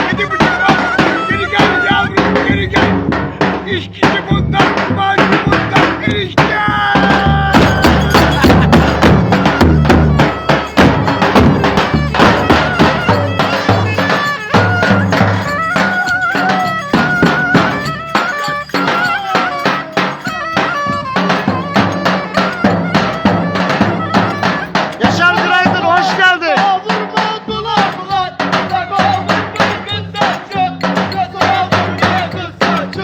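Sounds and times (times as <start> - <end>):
rapid drum beats: 0.0 - 33.0
wavering melody line: 7.2 - 25.8.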